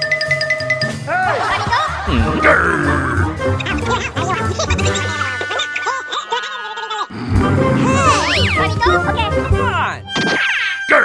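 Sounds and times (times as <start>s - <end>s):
background music: 0.0s - 6.4s, 7.1s - 11.0s
heavy bass beat: 0.9s - 5.4s, 7.3s - 10.0s
voice over music: 1.1s - 6.2s, 7.1s - 10.2s.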